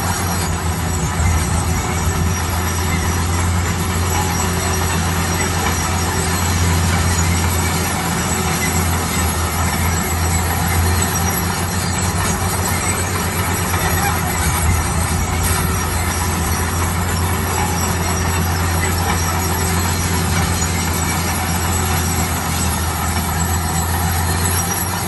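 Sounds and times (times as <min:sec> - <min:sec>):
diesel engine running under load: 0:00.0 - 0:25.0
steady mechanical noise: 0:00.0 - 0:25.0.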